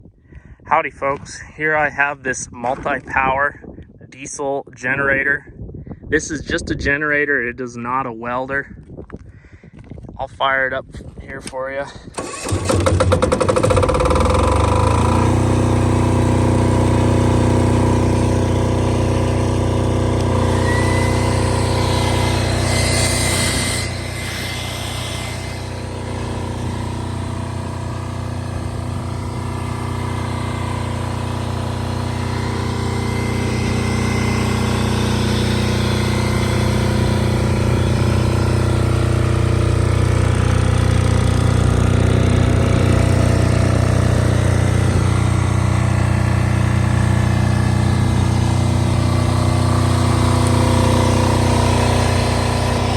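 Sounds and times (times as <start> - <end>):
diesel generator running: 11.8 - 52.9.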